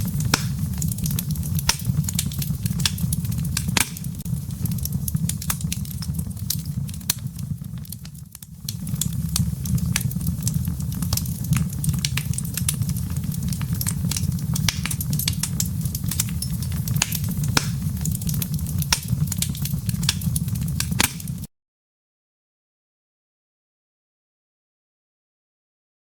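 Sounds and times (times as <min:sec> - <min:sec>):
fire crackling and popping: 0:00.0 - 0:21.5
low rumble of flames: 0:00.0 - 0:21.5.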